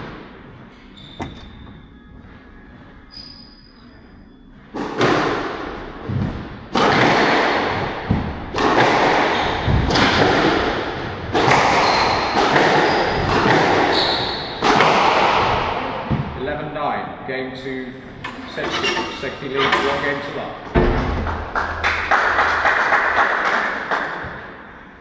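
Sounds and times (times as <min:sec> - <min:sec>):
squash ball hitting walls: 0:04.6 - 0:16.6, 0:20.3 - 0:25.0.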